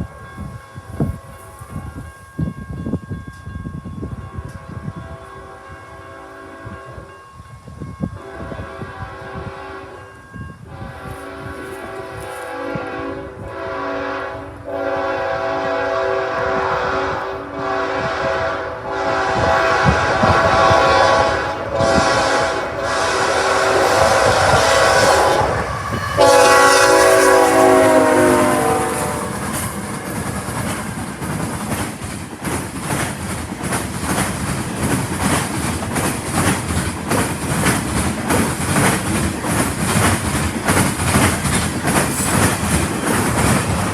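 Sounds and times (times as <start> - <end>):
train horn blasts: 4.4 - 7.2, 8.1 - 30.8
train wheels clickety-clack: 19.3 - 43.9.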